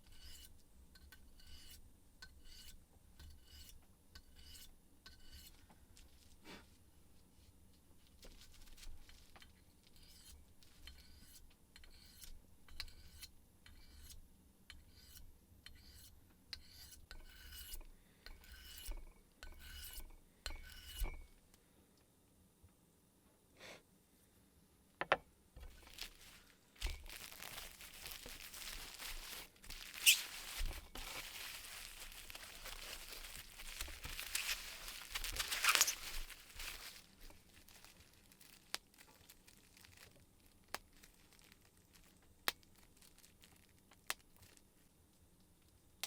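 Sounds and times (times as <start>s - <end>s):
rustling crinkling handling noise: 5.6s - 10.0s, 25.6s - 45.2s
sharp tearing: 27.1s - 38.0s.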